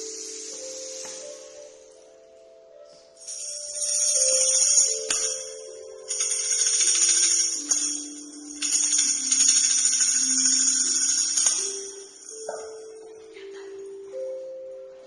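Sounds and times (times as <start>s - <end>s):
shaken jingling percussion: 3.2s - 13.1s.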